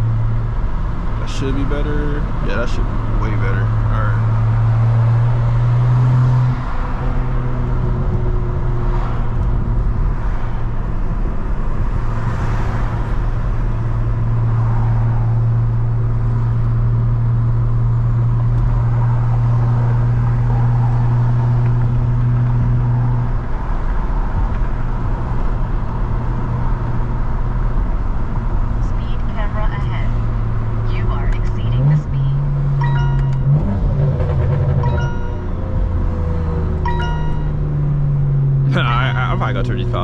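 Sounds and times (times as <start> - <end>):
road noise: 0.0 - 40.0.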